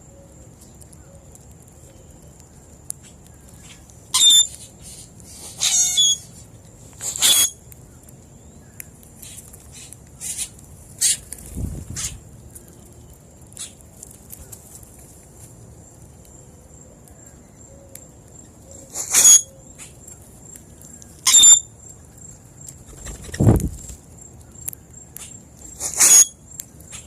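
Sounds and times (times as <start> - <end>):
harsh bird calls: 3.4 - 6.3.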